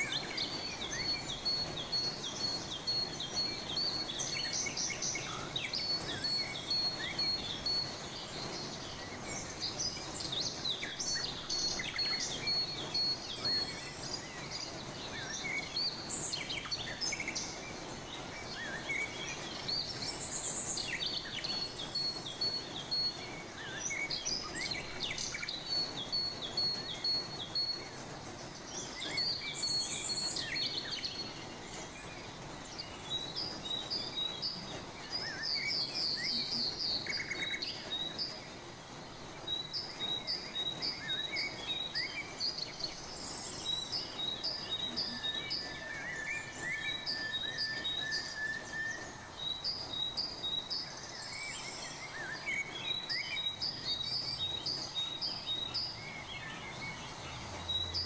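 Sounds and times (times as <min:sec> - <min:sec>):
birds chirping: 0:00.0 - 0:58.0
steady background hiss: 0:00.0 - 0:58.0.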